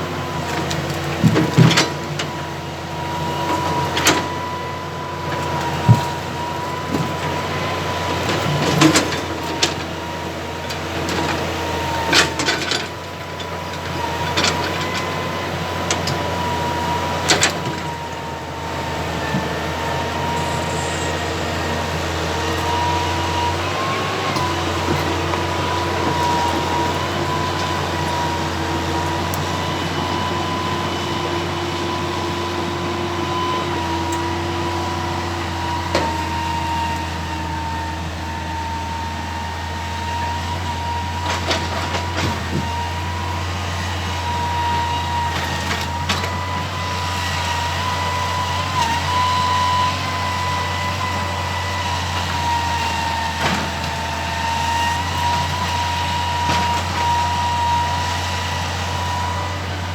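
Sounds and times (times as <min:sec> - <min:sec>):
excavator diesel engine running: 0:00.0 - 0:59.9
high whine: 0:19.8 - 0:23.3.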